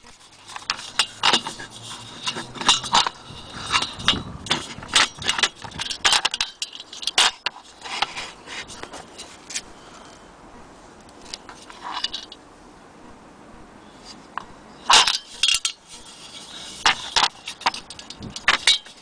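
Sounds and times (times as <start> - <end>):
metal parts clinking and scraping: 0.0 - 9.6, 11.2 - 12.4, 14.8 - 19.0.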